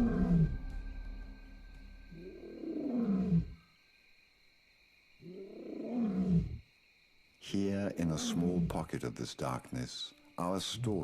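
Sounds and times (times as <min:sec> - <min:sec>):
music: 0:00.0 - 0:02.5
lion roaring: 0:02.1 - 0:03.6, 0:05.3 - 0:06.6.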